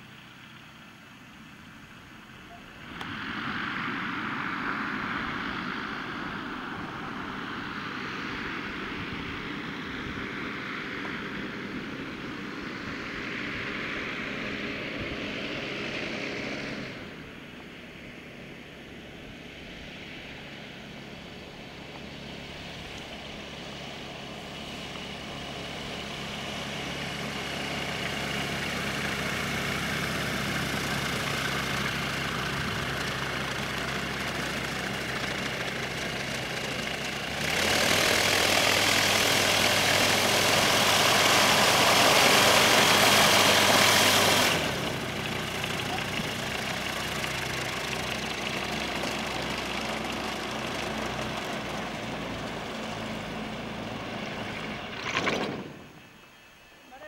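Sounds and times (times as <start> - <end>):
propeller aeroplane engine: 0.0 - 57.0.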